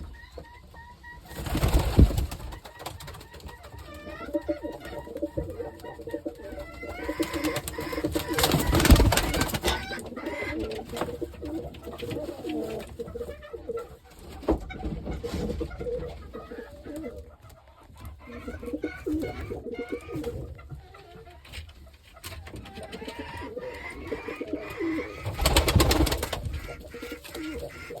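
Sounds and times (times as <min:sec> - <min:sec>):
pigeons cooing: 0:03.6 - 0:14.4, 0:15.2 - 0:17.4, 0:18.1 - 0:20.8, 0:22.5 - 0:28.0.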